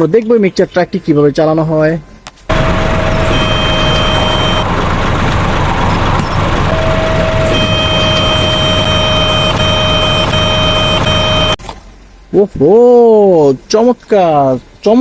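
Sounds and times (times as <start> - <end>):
truck engine rumbling: 0.0 - 13.6
high whining tones: 2.0 - 11.6.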